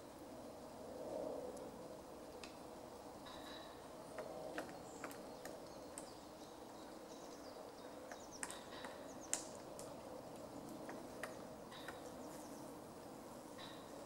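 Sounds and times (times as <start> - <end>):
small birds chirping: 3.2 - 14.0.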